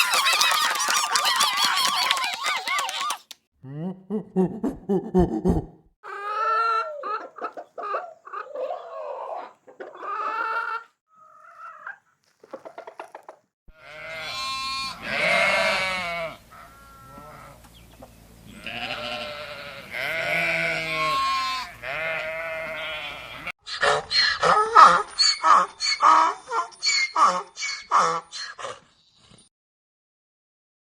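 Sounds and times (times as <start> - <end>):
chickens clucking: 0.0 - 3.4, 4.4 - 13.5, 16.4 - 18.9
sheep bleating: 13.7 - 17.6, 18.5 - 23.5.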